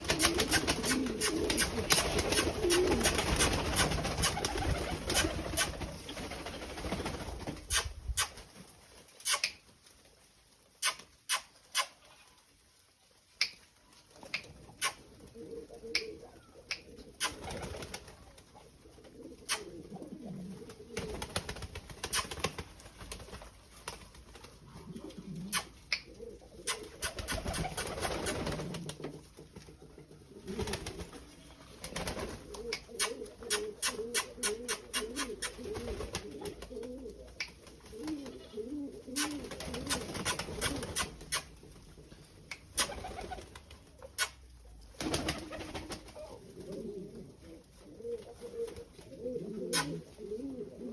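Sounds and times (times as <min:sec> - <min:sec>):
pigeons cooing: 0:00.0 - 0:06.2, 0:14.7 - 0:18.0, 0:18.7 - 0:22.4, 0:24.6 - 0:29.2, 0:29.8 - 0:41.6, 0:45.2 - 0:50.9.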